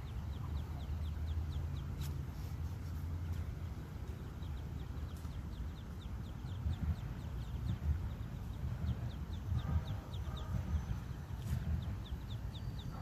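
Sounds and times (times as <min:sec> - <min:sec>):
ducklings peeping: 0:00.0 - 0:13.0
low rumble: 0:03.2 - 0:13.0.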